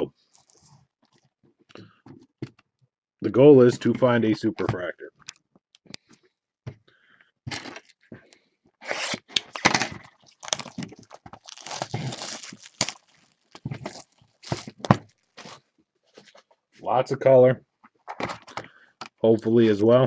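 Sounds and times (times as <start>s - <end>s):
foil wrappers crinkling: 0.3s - 0.7s, 9.0s - 16.4s
card packs tearing open: 8.8s - 15.6s.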